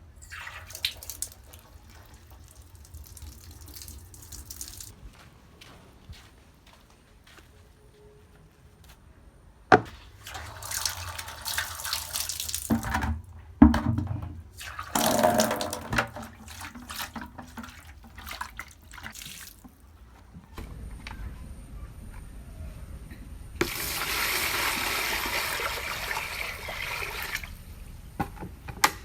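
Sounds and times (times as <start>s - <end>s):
tap water running into sink: 0.2s - 4.9s, 10.2s - 19.8s.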